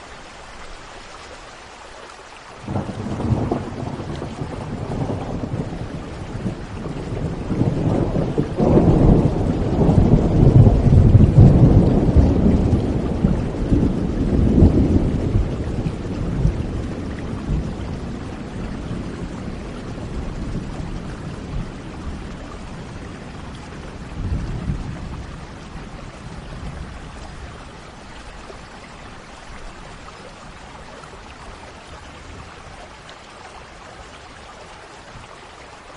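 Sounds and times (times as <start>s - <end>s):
steady rain: 0.0s - 35.9s
thunder rumbling: 2.7s - 28.1s.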